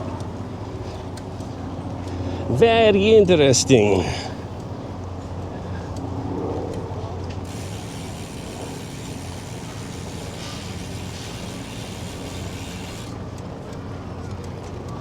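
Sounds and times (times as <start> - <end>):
road and wind rumble: 0.0 - 15.0
bicycle freewheel ticking: 7.4 - 13.8.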